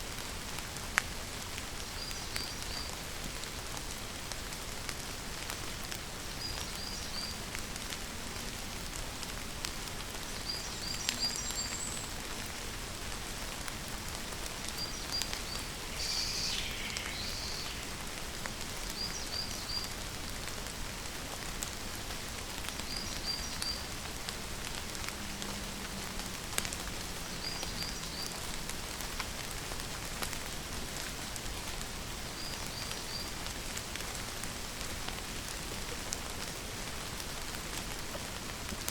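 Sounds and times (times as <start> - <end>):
rain falling: 0.0 - 38.9
bird chirping: 14.7 - 18.2.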